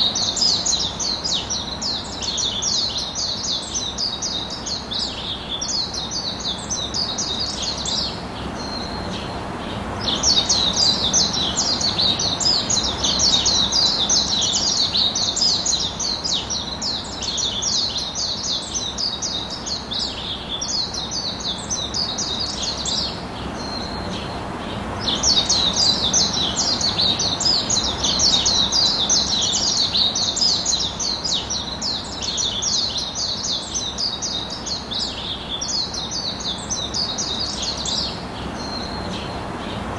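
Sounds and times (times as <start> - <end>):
birds chirping rapidly: 0.0 - 39.9
steady background hiss: 0.0 - 39.9.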